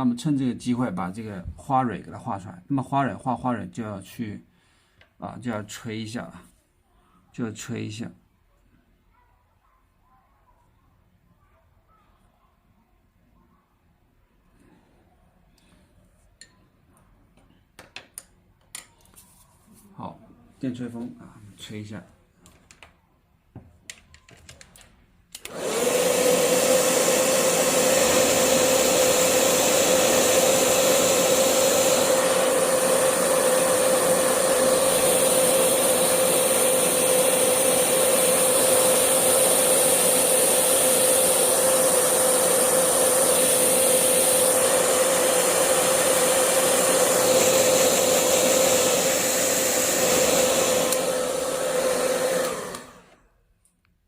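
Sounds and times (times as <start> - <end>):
hair dryer humming: 25.4 - 53.3.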